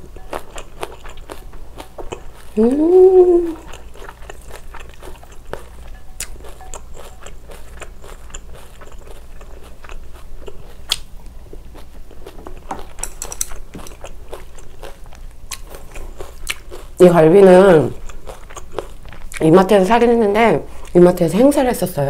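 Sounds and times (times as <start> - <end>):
wet crunchy chewing: 0.0 - 2.8, 3.6 - 17.1, 17.9 - 19.5.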